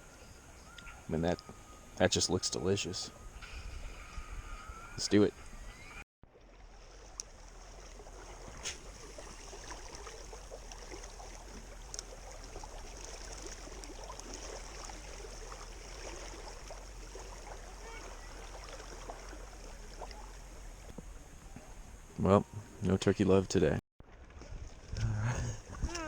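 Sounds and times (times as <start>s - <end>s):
soft hiss of water: 6.6s - 22.8s.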